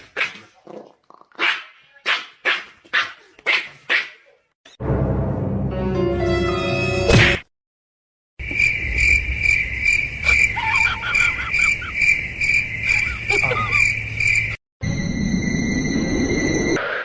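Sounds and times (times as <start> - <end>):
cricket chirping: 8.4 - 16.8.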